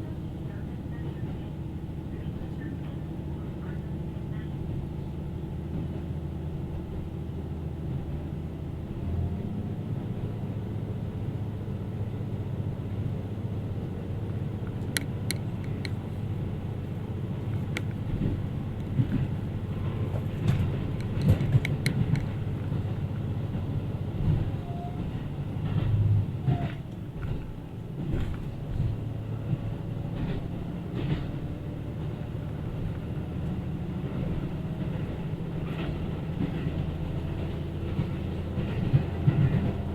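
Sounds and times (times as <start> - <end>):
diesel train engine drone: 0.0 - 39.9
train wheel rumble: 0.0 - 39.9
sharp clicks and knocks: 14.6 - 16.2, 17.4 - 23.0.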